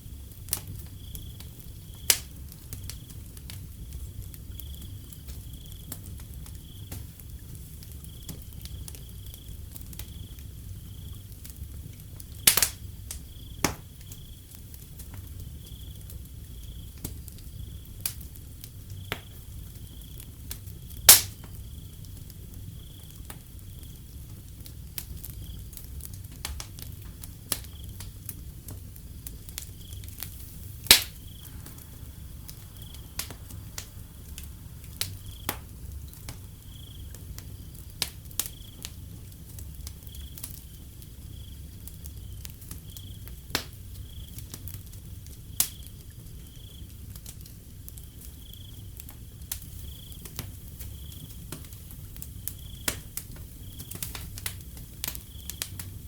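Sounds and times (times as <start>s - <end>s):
wood fire crackling and popping: 0.0s - 56.0s
cricket chirping: 0.7s - 47.1s, 48.1s - 56.0s
low steady rumble: 26.9s - 38.4s.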